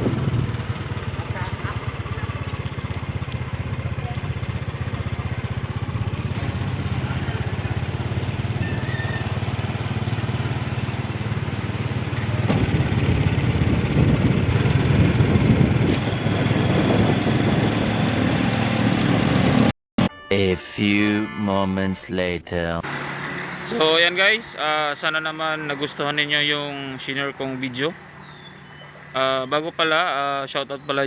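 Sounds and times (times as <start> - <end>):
engine running: 0.0 - 19.7, 22.6 - 30.8.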